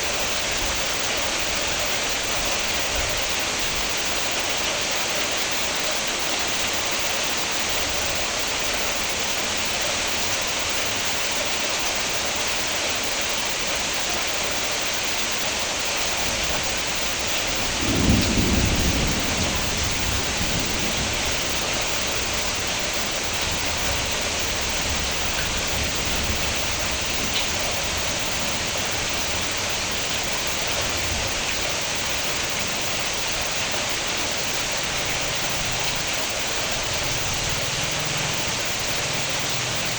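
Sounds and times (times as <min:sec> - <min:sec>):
steady rain falling: 0:00.0 - 0:39.9
low rumble of thunder: 0:16.2 - 0:39.9.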